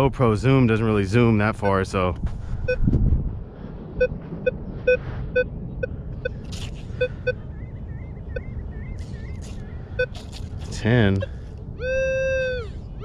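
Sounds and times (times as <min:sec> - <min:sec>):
surf and wind rumble: 0:00.0 - 0:13.0
metal detector beeps: 0:04.0 - 0:10.4
faint warbling whistle: 0:07.0 - 0:10.2.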